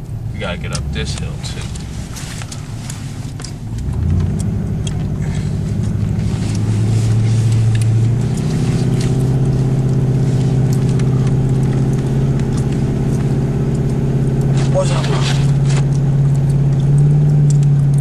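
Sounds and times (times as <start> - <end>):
car engine accelerating uphill: 0.0 - 18.0.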